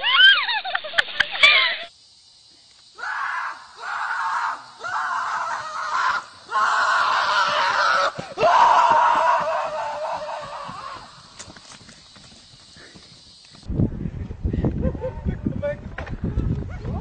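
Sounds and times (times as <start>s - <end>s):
long screams: 0.0s - 0.5s, 2.9s - 11.4s.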